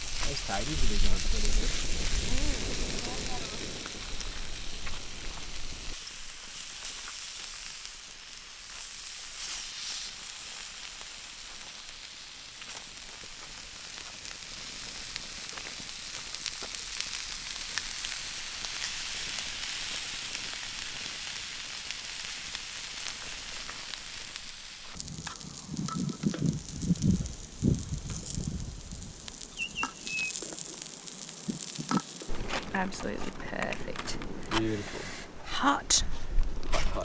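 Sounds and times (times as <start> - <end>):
food sizzling on a hotplate: 0.0 - 33.3
small crackling pops: 6.8 - 28.5, 29.2 - 37.0.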